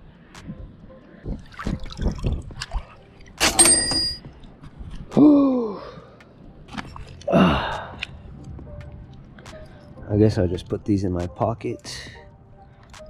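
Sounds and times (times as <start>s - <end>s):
trickling water: 1.2s - 3.4s
person exhaling or grunting: 5.1s - 6.0s, 7.3s - 8.0s.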